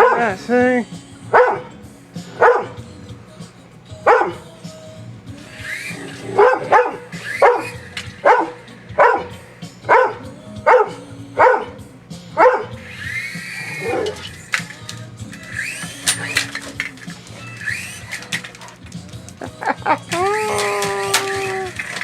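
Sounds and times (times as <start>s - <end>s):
dog barking: 0.0s - 0.4s, 1.3s - 2.8s, 4.1s - 4.5s, 5.8s - 11.8s, 12.4s - 13.0s, 13.6s - 14.4s.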